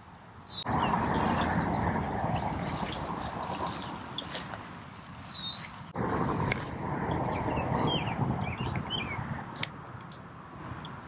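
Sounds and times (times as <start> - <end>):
outdoor noise rush: 0.0 - 11.0
birds chirping: 0.4 - 2.0, 5.2 - 9.4, 10.5 - 11.0
loud whistled call: 5.2 - 5.7.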